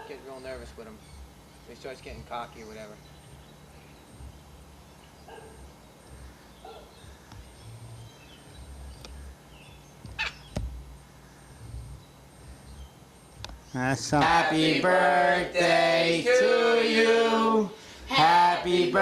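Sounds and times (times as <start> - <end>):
parrot calls: 10.1 - 10.5.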